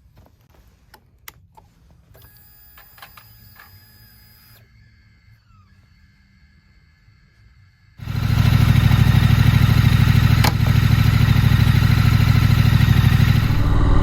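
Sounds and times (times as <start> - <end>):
motorcycle engine idling: 8.0 - 13.9.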